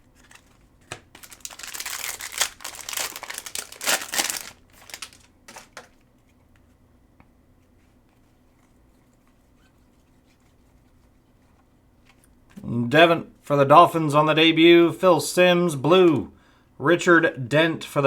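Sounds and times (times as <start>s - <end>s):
wrapper tearing and crinkling: 0.1s - 5.9s.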